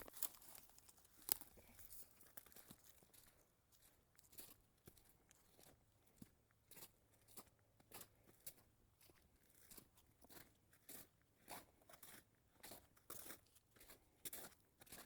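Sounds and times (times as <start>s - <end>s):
footsteps crunching through snow: 0.0s - 3.8s.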